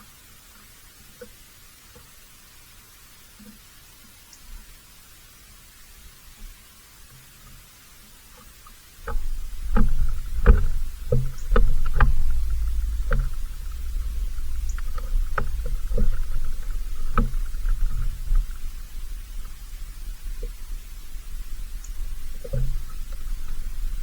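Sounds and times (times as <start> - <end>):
low rumble: 9.0 - 24.0
sharp knocks and clicks: 9.0 - 24.0.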